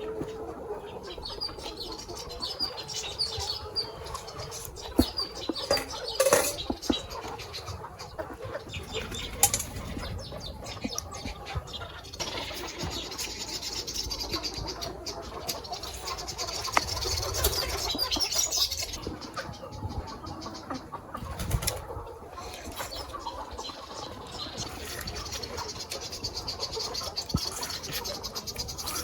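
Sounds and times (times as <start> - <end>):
chickens flapping wings: 21.2 - 22.0.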